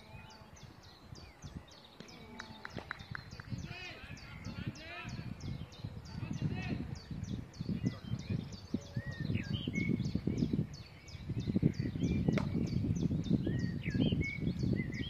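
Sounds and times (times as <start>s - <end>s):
bird chirping rapidly: 0.0s - 15.0s
birds whistling: 0.0s - 15.0s.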